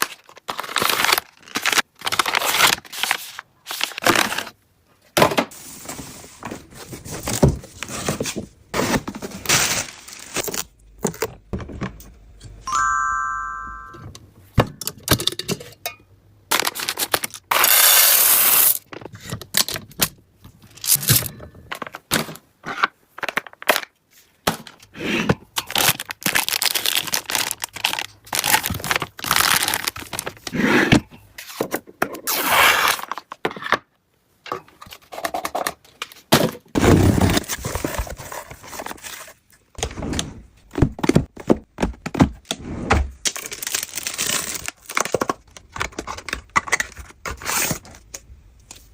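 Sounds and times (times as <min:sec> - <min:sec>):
cardboard tearing and crinkling: 0:00.0 - 0:04.6, 0:25.7 - 0:30.5, 0:32.2 - 0:33.3, 0:43.2 - 0:47.9.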